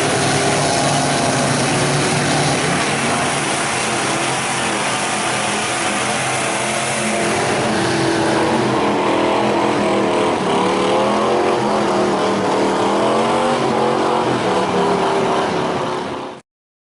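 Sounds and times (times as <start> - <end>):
truck engine revving: 0.0 - 16.4.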